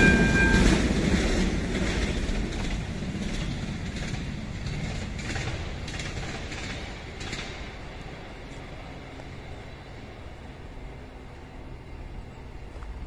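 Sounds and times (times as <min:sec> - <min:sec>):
wheels clacking over rails: 0:00.0 - 0:08.9
train rumble: 0:00.0 - 0:13.0.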